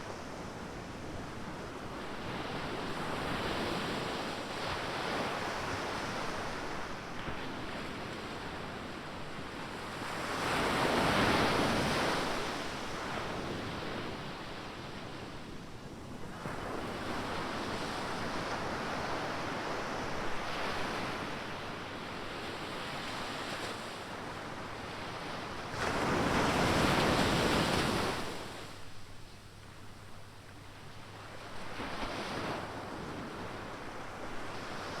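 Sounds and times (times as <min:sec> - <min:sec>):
ocean waves breaking on beach: 0:16.3 - 0:28.8.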